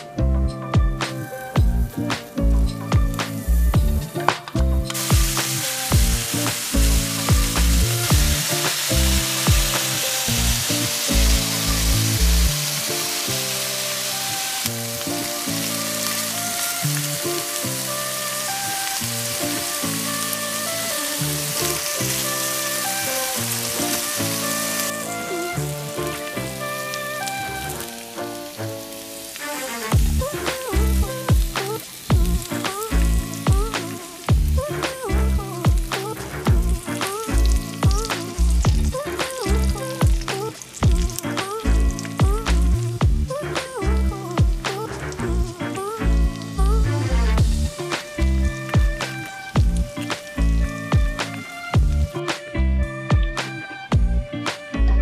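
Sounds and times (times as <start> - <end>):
background music with a beat: 0.0 - 13.3, 29.4 - 55.0
shrimp sizzling in butter: 1.1 - 52.4.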